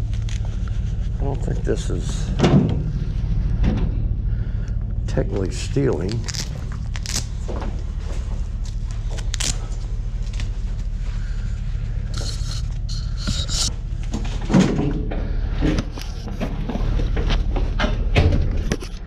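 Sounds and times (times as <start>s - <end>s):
steady low hum: 0.0s - 19.0s
scraping rustle: 6.0s - 14.4s.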